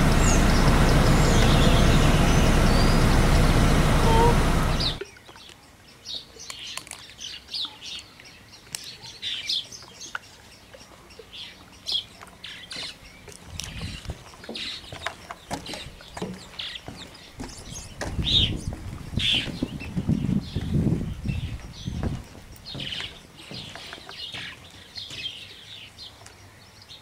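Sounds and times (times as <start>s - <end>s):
low rumbling noise: 0.0s - 5.0s
small birds chirping: 0.0s - 27.0s.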